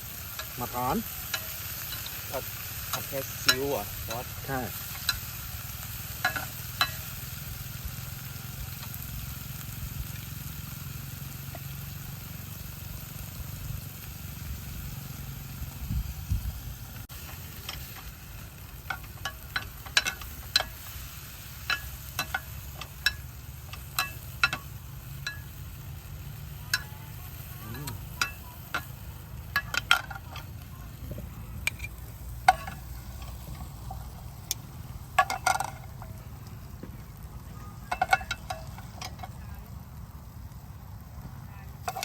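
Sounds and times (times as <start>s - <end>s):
food sizzling in a pan: 0.0s - 42.0s
metal utensil clinking on pan: 0.2s - 7.2s, 17.2s - 25.7s, 26.6s - 27.0s, 27.8s - 30.6s, 31.6s - 36.2s, 37.8s - 39.5s
steady low rumble: 11.9s - 41.9s.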